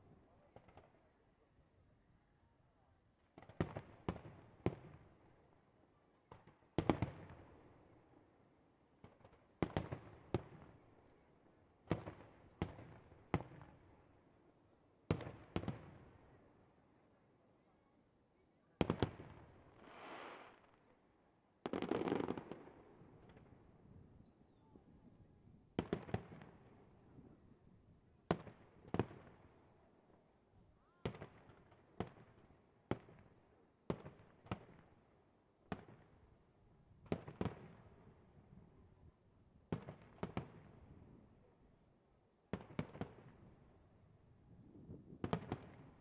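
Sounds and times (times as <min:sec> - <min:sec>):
firework hiss: 0:19.8 - 0:20.6.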